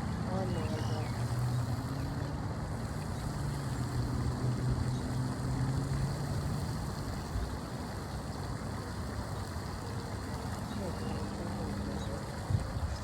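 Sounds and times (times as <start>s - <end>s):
distant motor engine drone: 0.0s - 13.0s
wind rumble on microphone: 10.7s - 13.0s.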